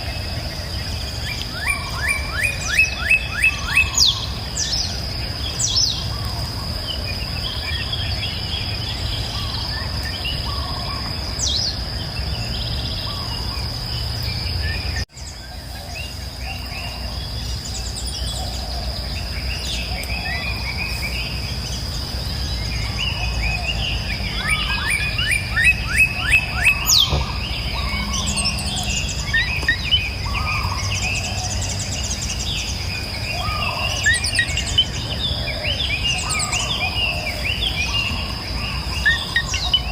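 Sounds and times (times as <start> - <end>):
birds calling and chirping: 0.0 - 39.9
high-pitched insect drone: 14.8 - 39.9.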